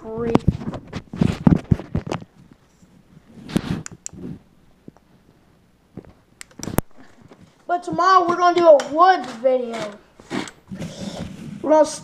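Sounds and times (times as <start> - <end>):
sharp clicks: 6.4 - 6.9.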